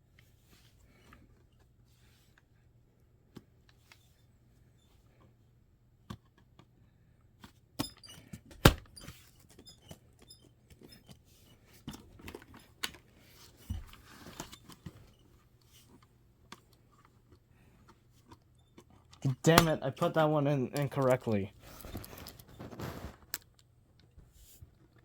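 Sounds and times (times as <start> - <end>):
memory sticks clicking into slots: 19.2 - 21.4.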